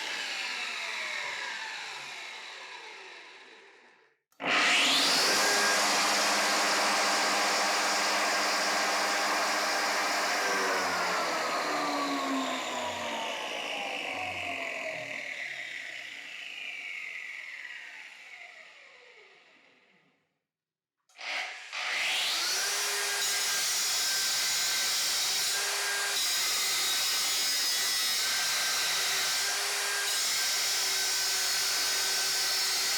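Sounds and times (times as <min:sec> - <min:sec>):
angle grinder motor whine: 0:04.4 - 0:18.4.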